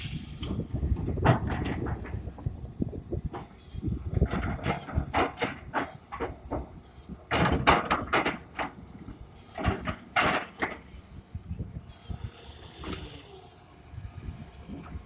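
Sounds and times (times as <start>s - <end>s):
excavator low rumble: 0.0s - 15.0s
excavator clanks and knocks: 0.8s - 2.6s, 3.2s - 11.4s.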